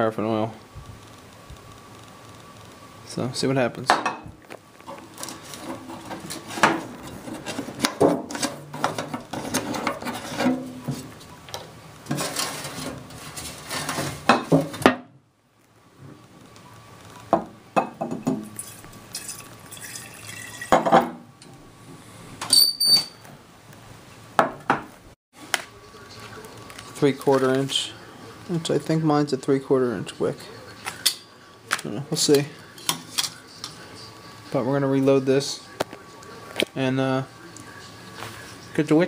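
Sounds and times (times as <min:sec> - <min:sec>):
liquid sloshing in glass: 0:18.6 - 0:20.8.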